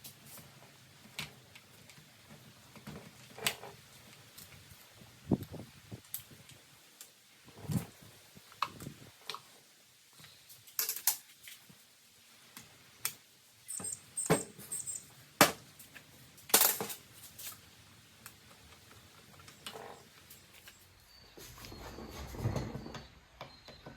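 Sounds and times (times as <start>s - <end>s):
hand tools clicking and clinking: 13.7s - 17.6s.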